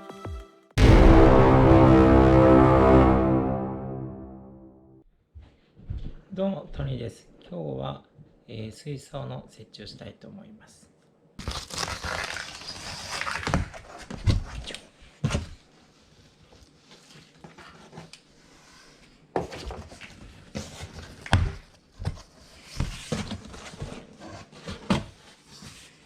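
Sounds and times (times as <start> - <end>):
cardboard rustling and scraping: 15.3 - 26.0.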